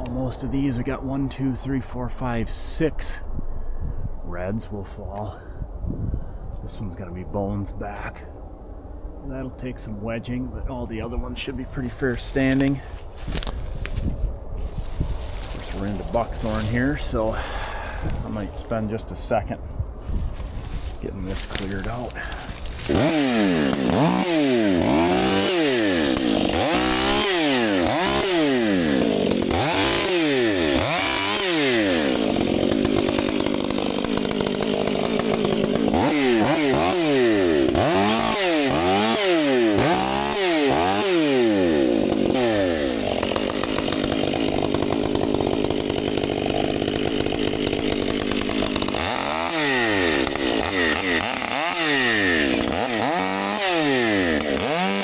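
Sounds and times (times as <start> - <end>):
chainsaw cutting brush: 11.6 - 18.9, 20.0 - 55.0.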